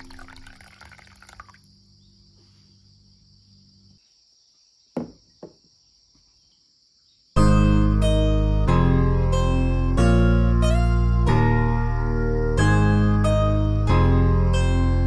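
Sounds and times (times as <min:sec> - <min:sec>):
hot water pouring into a bowl: 0:00.0 - 0:01.6
acoustic guitar music: 0:07.4 - 0:15.0.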